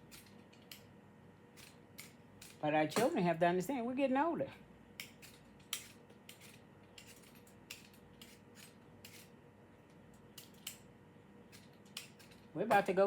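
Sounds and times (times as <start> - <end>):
kitchen utensils clicking and scraping: 0.0 - 0.9, 1.5 - 3.4, 5.0 - 9.4, 10.2 - 10.9, 11.5 - 13.0.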